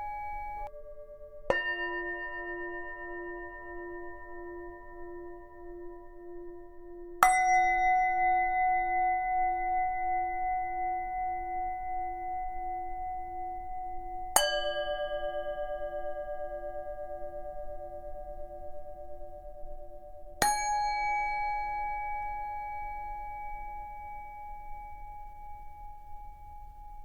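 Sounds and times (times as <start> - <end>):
singing bowl ringing: 0.0 - 6.4, 13.2 - 27.0.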